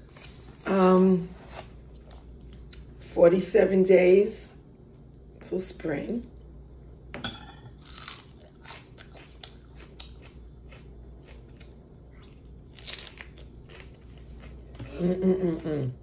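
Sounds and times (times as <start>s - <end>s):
person chewing crunchy food: 7.8s - 15.0s.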